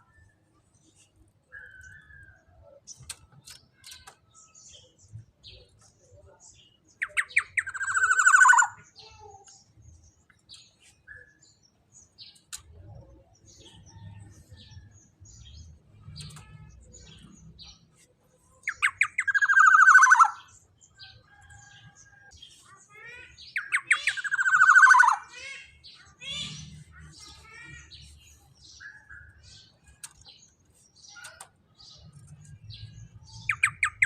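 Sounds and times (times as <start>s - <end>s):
bird harsh rasping calls: 7.0s - 8.8s, 18.7s - 20.5s, 23.2s - 28.2s.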